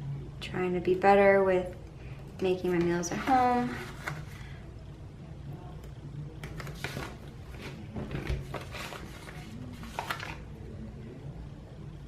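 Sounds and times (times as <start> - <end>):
paper stickers peeling and rustling: 6.4 - 10.5.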